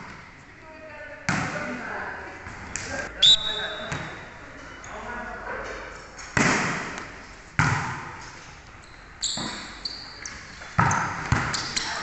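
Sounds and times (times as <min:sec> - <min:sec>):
sneaker squeaks: 0:03.2 - 0:05.0, 0:08.3 - 0:12.0
basketball thuds: 0:07.6 - 0:08.2, 0:10.8 - 0:11.6.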